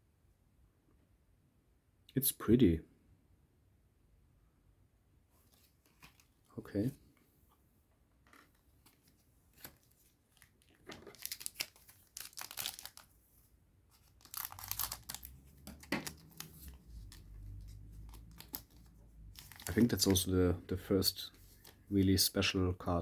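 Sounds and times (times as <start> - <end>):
foil pack tearing and crinkling: 10.4 - 13.1, 14.0 - 17.1, 18.1 - 18.7, 19.4 - 20.2.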